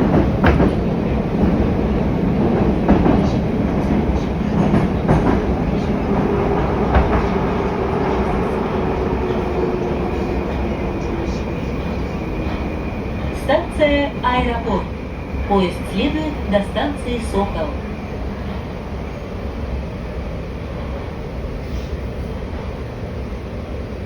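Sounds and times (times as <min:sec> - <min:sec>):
knocks at rail joints: 0:00.0 - 0:00.8
train wheels rumbling on rail: 0:00.0 - 0:24.0.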